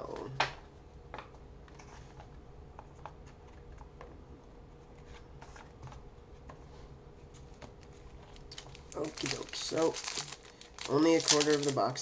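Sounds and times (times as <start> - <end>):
faint steady hum: 0.0 - 12.0
cards being shuffled: 7.4 - 12.0.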